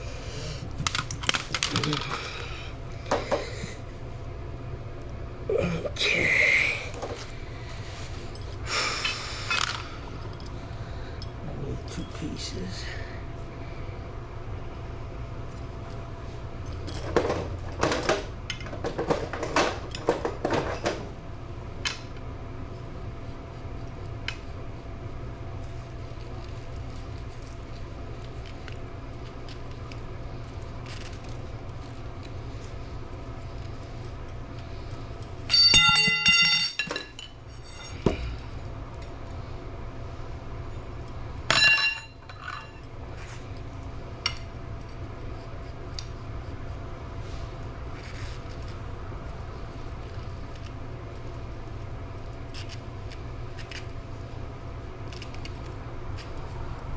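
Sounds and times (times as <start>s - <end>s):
steady low hum: 0.0s - 56.9s
ringing metallic clinks: 35.5s - 38.0s
plumbing fittings and tools clattering: 35.5s - 38.3s.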